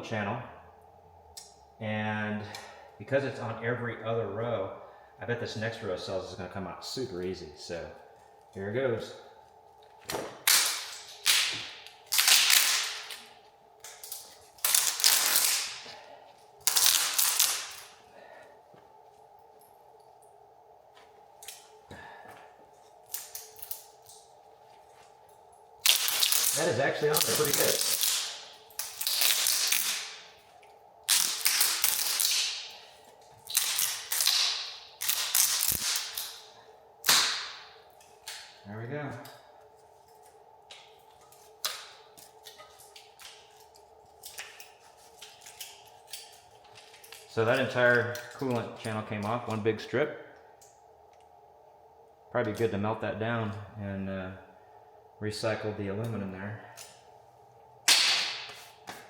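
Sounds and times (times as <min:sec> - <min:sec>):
metal strip ripping off adhesive: 0:10.4 - 0:13.2, 0:13.8 - 0:15.8, 0:16.6 - 0:17.9, 0:25.8 - 0:30.2, 0:31.1 - 0:32.8, 0:33.4 - 0:36.4.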